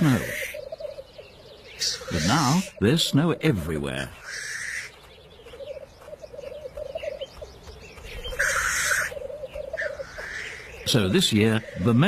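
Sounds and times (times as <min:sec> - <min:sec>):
black grouse bubbling and cooing: 0:00.0 - 0:03.3, 0:04.2 - 0:12.0
black grouse hissing call: 0:01.7 - 0:02.8, 0:04.2 - 0:04.9, 0:08.3 - 0:10.7.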